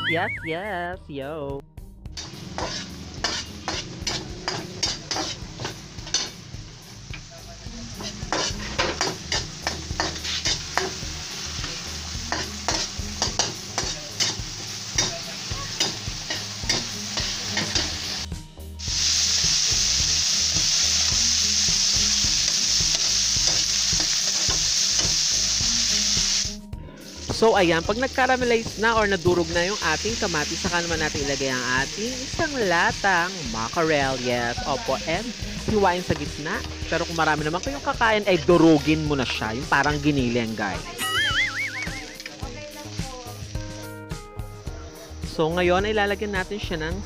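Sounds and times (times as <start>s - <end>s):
metal spatula scraping wok: 2.2s - 6.5s, 7.9s - 18.3s, 19.0s - 25.3s
vegetables sizzling in oil: 2.2s - 47.0s.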